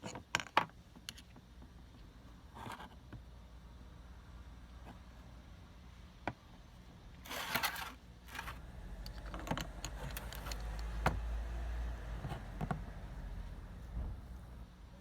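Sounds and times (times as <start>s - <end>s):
small hard parts clattering: 7.3s - 11.3s.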